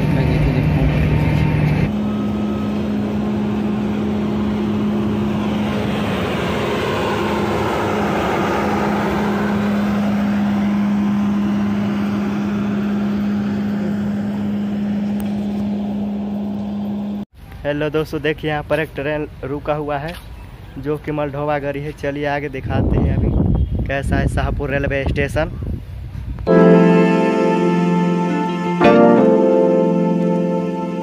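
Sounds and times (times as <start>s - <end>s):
steady low hum: 0.0s - 17.2s.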